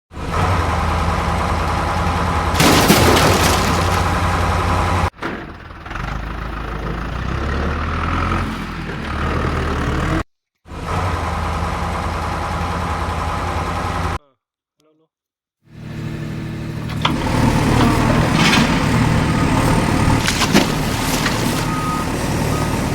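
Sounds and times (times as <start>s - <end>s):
vehicle engine running: 15.8s - 22.9s.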